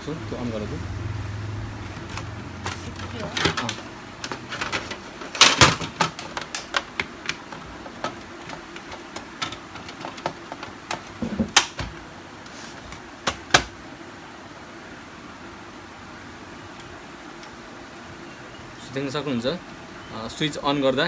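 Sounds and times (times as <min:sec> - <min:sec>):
plastic casing clicks and knocks: 0:03.4 - 0:12.0, 0:13.3 - 0:13.7.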